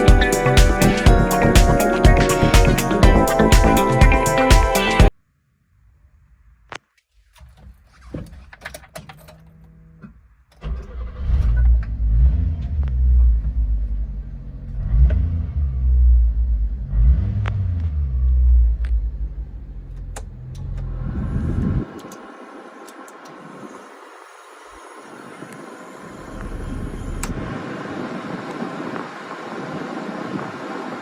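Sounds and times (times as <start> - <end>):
car engine starting and revving: 10.6 - 31.0.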